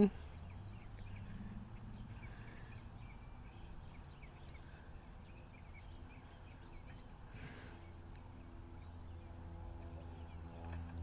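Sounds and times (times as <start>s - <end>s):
birds chirping faintly: 0.0s - 11.0s
low steady rumble: 0.0s - 11.0s.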